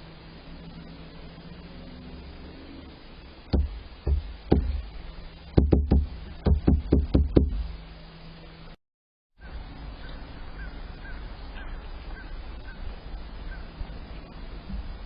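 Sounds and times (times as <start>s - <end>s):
low background hum: 0.0s - 8.8s
sharp knocks: 3.5s - 4.9s, 5.6s - 7.8s.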